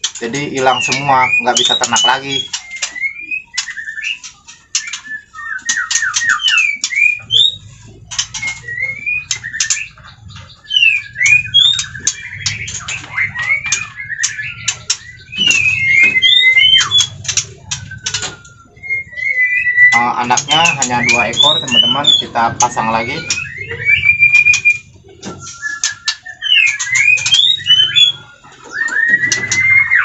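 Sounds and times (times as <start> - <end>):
bird clicks and whistles: 0.0 - 30.0.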